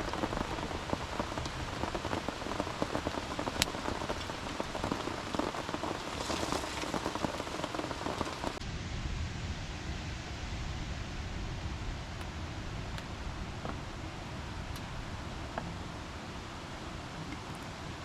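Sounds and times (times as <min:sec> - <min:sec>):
heavy rain falling: 0:00.0 - 0:08.7.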